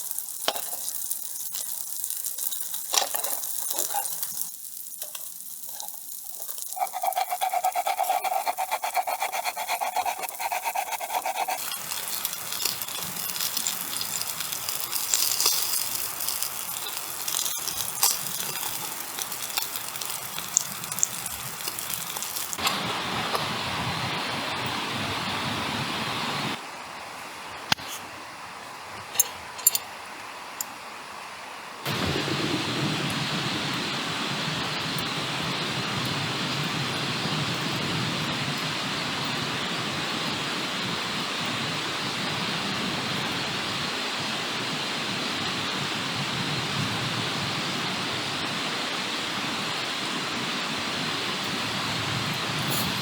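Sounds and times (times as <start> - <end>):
campfire crackling and popping: 0.0 - 23.5
steady rushing noise: 31.8 - 38.5.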